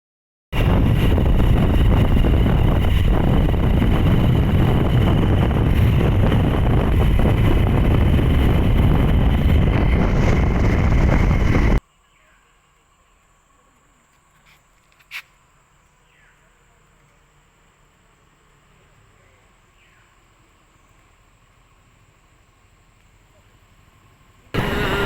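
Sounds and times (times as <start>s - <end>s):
wind rush on microphone: 0.5s - 11.8s, 24.6s - 25.0s
motorcycle engine and road noise: 0.6s - 11.8s, 20.2s - 25.0s.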